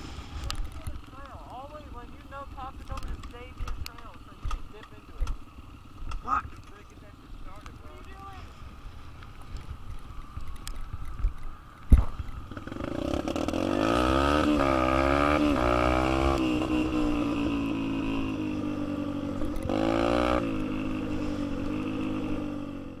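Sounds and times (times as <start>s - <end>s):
dirt bike engine revving: 12.0s - 23.0s.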